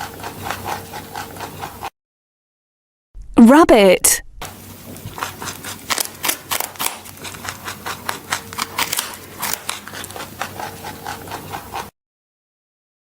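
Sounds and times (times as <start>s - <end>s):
rabbit chewing: 0.0s - 1.9s, 4.4s - 11.9s.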